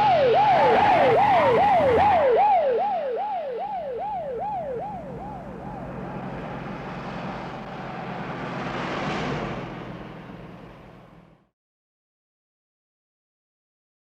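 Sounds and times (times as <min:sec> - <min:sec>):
car engine running: 0:00.0 - 0:02.3, 0:04.0 - 0:11.5
car rushing past: 0:00.0 - 0:02.6, 0:04.0 - 0:11.5
police siren yelping: 0:00.0 - 0:08.9.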